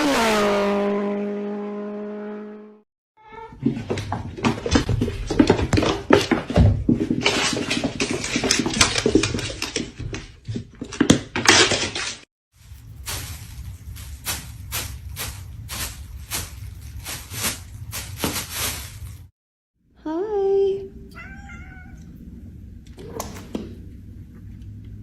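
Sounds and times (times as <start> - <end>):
cat meowing: 3.2 - 3.6, 21.1 - 22.1.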